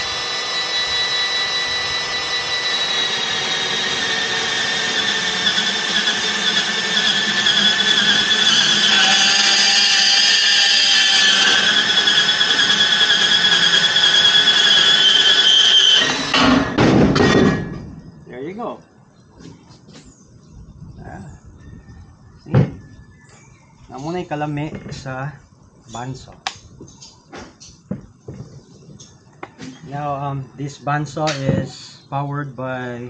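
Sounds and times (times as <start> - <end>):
band saw cutting metal: 0.0 - 17.8.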